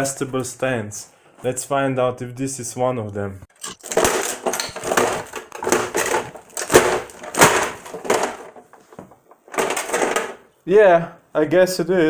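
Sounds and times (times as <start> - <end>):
plastic cracking and crunching: 3.6 - 10.4.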